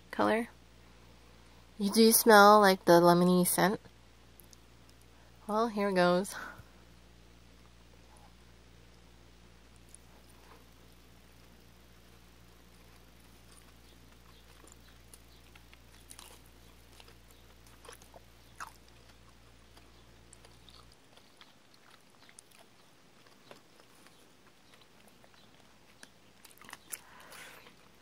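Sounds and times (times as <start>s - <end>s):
low background hum: 0.0s - 28.0s
person chewing candy: 9.8s - 28.0s.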